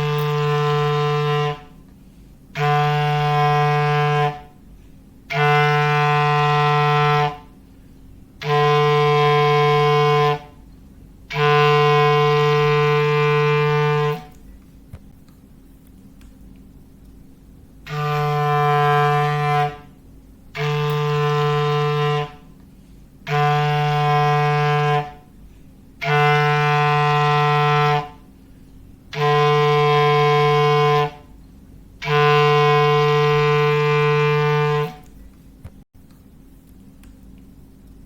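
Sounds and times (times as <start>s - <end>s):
clarinet playing low note: 0.0s - 1.9s, 2.5s - 4.6s, 5.3s - 7.6s, 8.4s - 10.6s, 11.3s - 14.4s, 17.8s - 22.6s, 23.2s - 25.4s, 26.0s - 28.3s, 29.1s - 31.4s, 32.0s - 35.1s.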